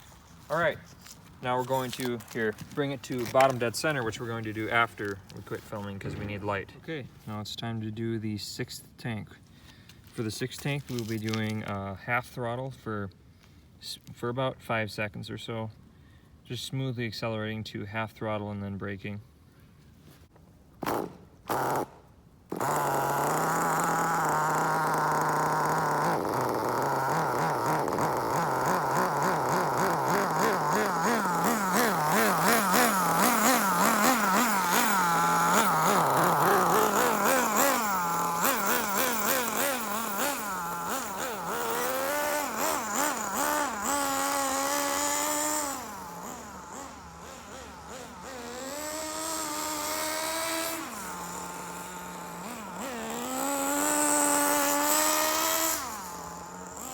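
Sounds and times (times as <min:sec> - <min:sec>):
small nitro engine revving: 0:20.8 - 0:56.9.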